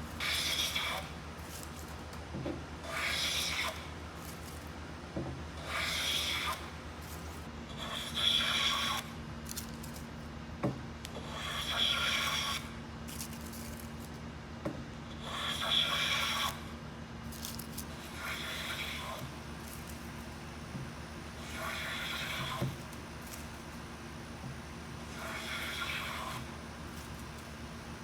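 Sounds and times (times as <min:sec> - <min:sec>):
abrasive rubbing across wood: 0:00.1 - 0:02.0, 0:02.8 - 0:04.7, 0:05.6 - 0:09.1, 0:17.3 - 0:28.0.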